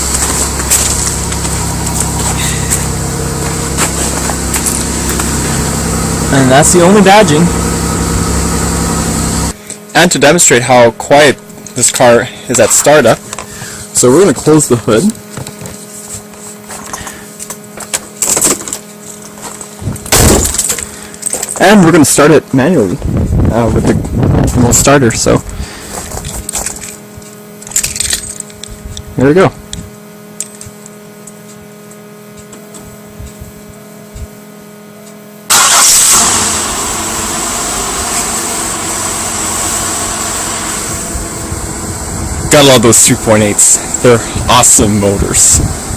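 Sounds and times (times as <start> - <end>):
car engine starting and idling: 0.0 - 9.6, 35.5 - 45.9
steady low hum: 0.0 - 45.9
car hood shutting thump: 20.1 - 20.6.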